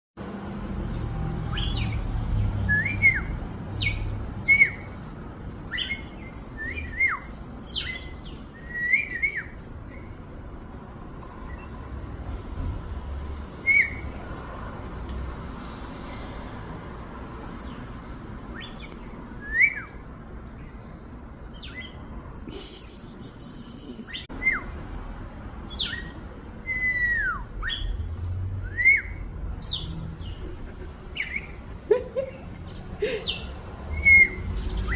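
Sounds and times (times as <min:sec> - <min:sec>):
small songbirds chirping: 0:01.5 - 0:22.4, 0:24.0 - 0:31.8, 0:32.6 - 0:34.9
rising bird whistle: 0:05.7 - 0:09.6, 0:13.6 - 0:14.2, 0:17.0 - 0:20.0, 0:25.7 - 0:27.9.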